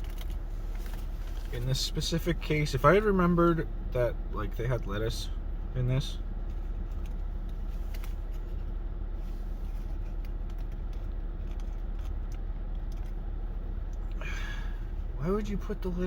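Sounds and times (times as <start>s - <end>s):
wrapper rustling and clicks: 0.0s - 1.5s
low background hum: 0.0s - 16.0s.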